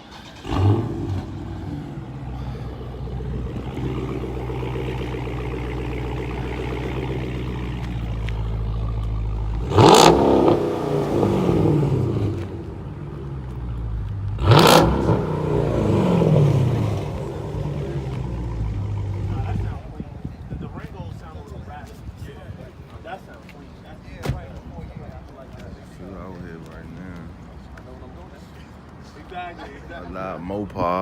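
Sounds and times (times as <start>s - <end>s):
car engine revving: 0.0s - 19.9s
car engine starting and idling: 0.0s - 20.3s.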